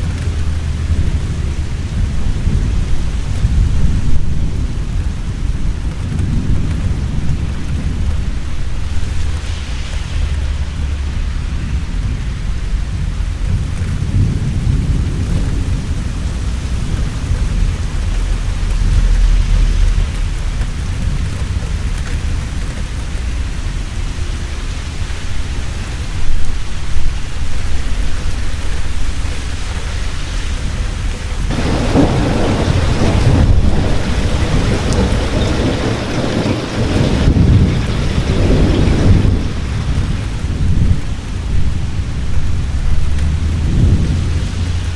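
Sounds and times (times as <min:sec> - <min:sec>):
heavy rain falling: 0:00.0 - 0:44.9
rolling thunder: 0:00.0 - 0:44.9
sharp thunder cracks: 0:31.4 - 0:44.9.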